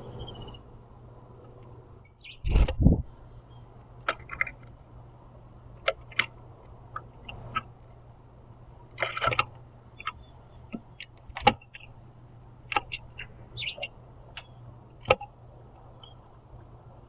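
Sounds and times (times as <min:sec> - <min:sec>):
beaks pecking at seed: 0:03.8 - 0:04.8, 0:05.8 - 0:07.7, 0:08.4 - 0:12.0, 0:12.6 - 0:16.4.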